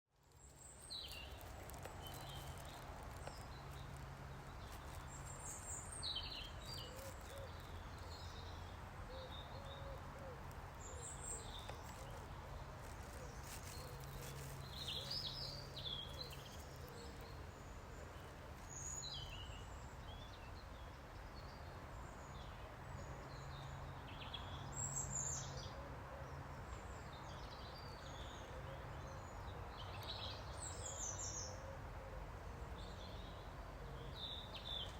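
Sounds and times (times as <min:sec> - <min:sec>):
small birds chirping: 0:00.2 - 0:20.4.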